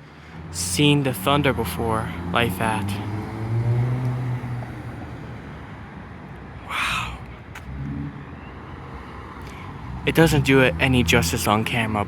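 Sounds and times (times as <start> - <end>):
faint outdoor background noise: 0.0 - 12.0
vehicle engine hum: 0.0 - 12.0
person whispering: 6.6 - 7.4.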